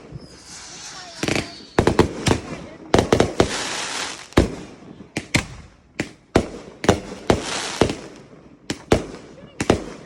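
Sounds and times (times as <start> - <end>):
firework hiss: 0.0 - 4.7, 7.0 - 8.2
fireworks bangs: 0.0 - 10.0.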